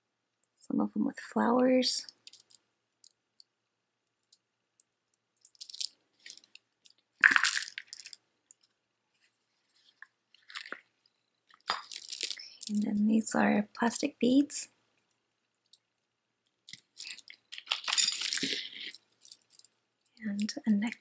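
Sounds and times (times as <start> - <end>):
beads clicking and rattling: 2.0 - 3.5, 4.1 - 8.7, 9.8 - 13.0, 14.9 - 21.0.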